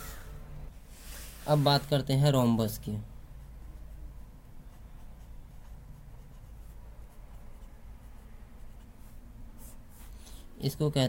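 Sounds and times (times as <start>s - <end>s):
steady low hum: 0.0s - 10.7s
pen scratching on paper: 3.3s - 10.2s.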